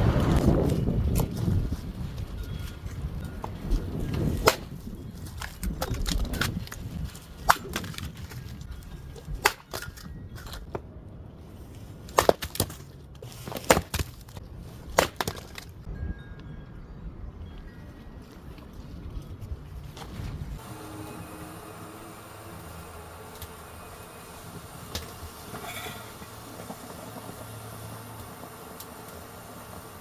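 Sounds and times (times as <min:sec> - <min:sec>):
low rumble of wind: 0:00.0 - 0:30.0
wood cracking and snapping: 0:04.1 - 0:08.7.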